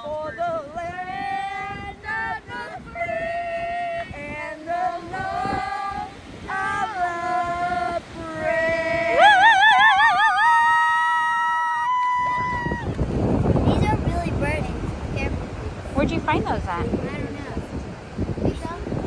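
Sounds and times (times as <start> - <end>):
high voice singing: 0.0 - 10.7.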